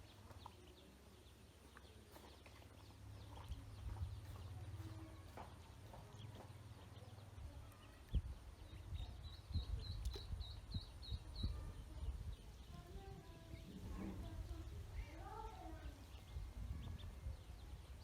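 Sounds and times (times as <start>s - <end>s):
duckling peeping: 0.0s - 4.9s, 5.6s - 12.7s.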